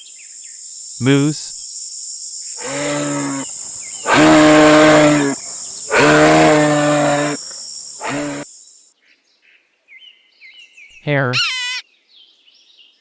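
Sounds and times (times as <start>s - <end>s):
moose moaning calls: 2.6s - 8.4s.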